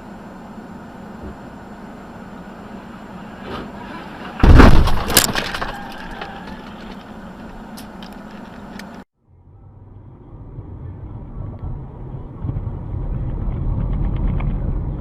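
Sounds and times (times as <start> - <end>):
road noise: 0.0 - 15.0
vehicle collision impacts: 3.3 - 8.6.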